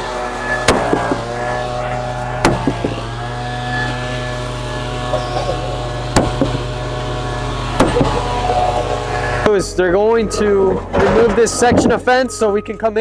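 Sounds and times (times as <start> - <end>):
droning hum: 0.0 - 13.0
sharp strikes breaking concrete: 0.4 - 9.5.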